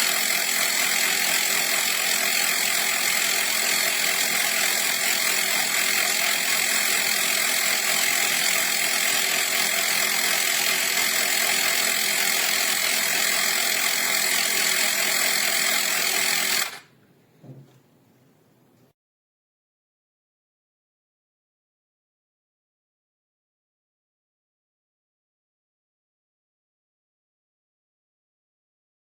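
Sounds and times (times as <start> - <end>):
mini air compressor running: 0.0 - 16.9
faint short knock: 17.4 - 17.9.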